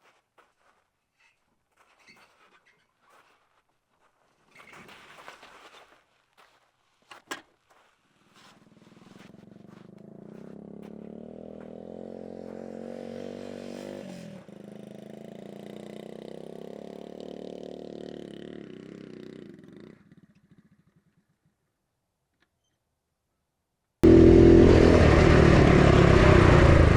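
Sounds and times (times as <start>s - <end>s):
motorcycle engine revving: 8.5s - 21.4s, 24.0s - 26.9s.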